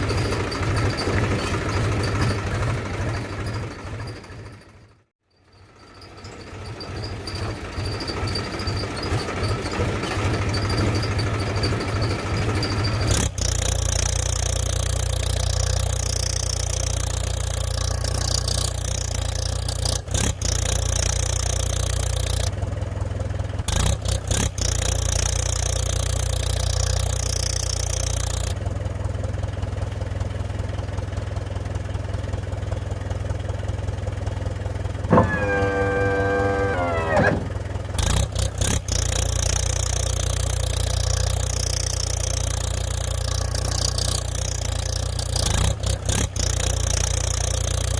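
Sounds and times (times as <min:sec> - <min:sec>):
engine humming: 0:05.6 - 0:47.9
short pitched tone: 0:35.1 - 0:37.7.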